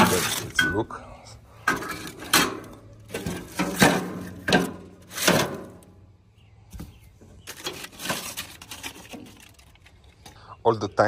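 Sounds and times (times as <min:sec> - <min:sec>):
metal grill parts clanking: 0:00.0 - 0:01.0, 0:01.6 - 0:06.0, 0:07.4 - 0:09.7.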